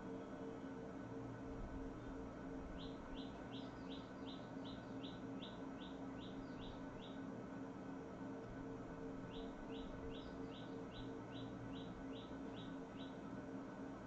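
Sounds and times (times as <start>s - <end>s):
faint low hum: 0.0s - 14.0s
bird chirping: 2.8s - 7.2s, 9.3s - 13.2s.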